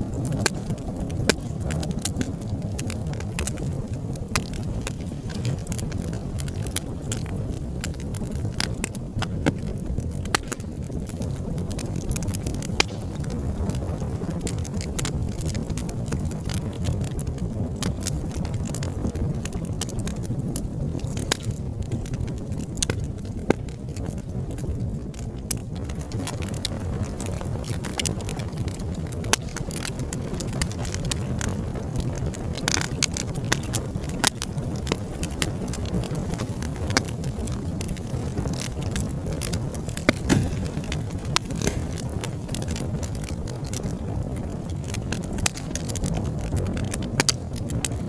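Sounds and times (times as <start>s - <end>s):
low rumble of flames: 0.0s - 48.0s
wood fire crackling: 0.0s - 48.0s.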